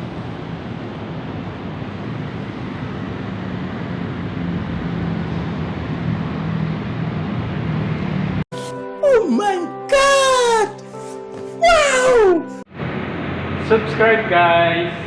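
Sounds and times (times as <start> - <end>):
steady rumbling noise: 0.0 - 8.4, 12.7 - 15.0
low drone: 11.8 - 15.0.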